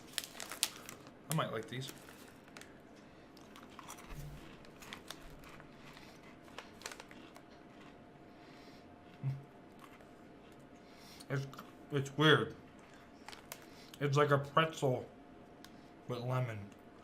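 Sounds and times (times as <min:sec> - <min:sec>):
packet crinkles: 0:00.0 - 0:02.8, 0:03.4 - 0:07.9, 0:12.9 - 0:13.7
crunching and chewing snacks: 0:00.0 - 0:11.8, 0:12.7 - 0:14.0.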